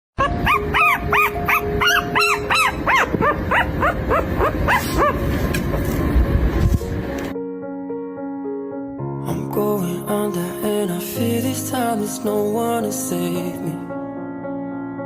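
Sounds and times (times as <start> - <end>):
puppy yelping: 0.2 - 5.3.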